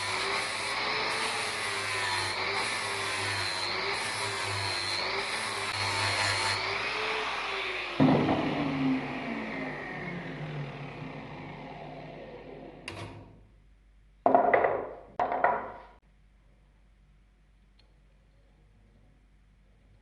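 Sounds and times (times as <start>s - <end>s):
power tool spinning down: 0.0s - 13.3s.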